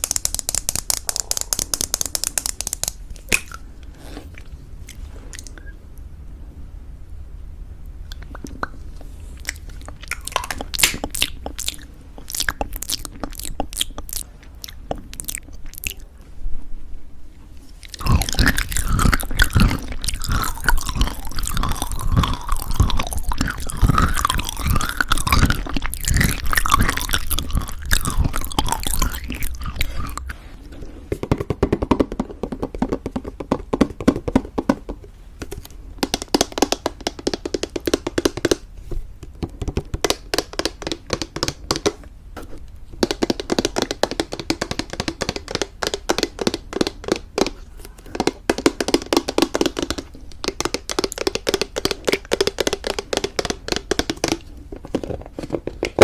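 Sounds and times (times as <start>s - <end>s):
crunching and chewing granola: 17.8s - 30.3s.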